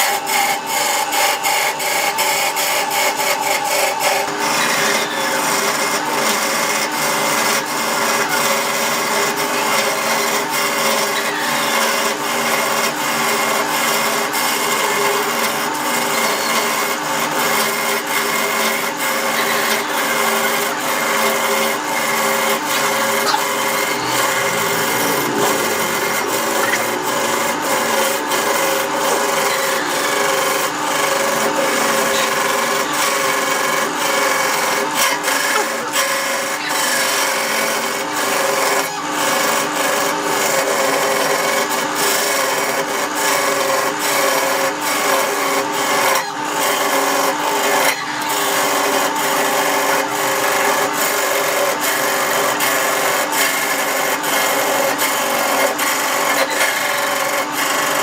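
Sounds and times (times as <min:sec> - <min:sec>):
lathe hum: 0:00.0 - 0:58.0
tool scraping spinning wood: 0:00.0 - 0:58.0.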